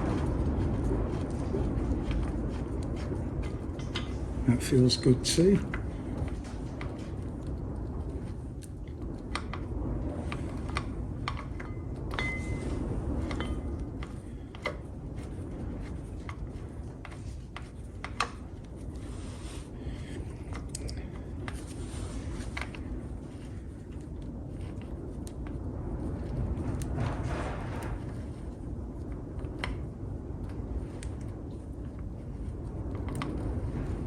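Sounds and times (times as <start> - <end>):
low rumble: 0.0 - 34.0
metallic ring: 12.1 - 12.8.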